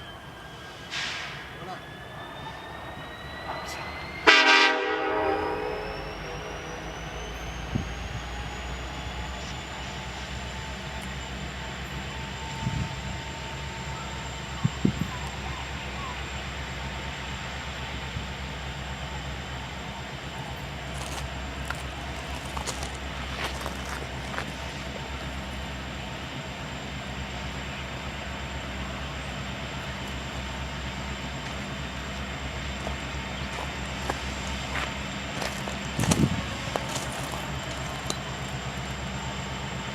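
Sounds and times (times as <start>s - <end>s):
diesel locomotive rumble: 0.0s - 39.9s
locomotive horn blast: 4.2s - 7.0s.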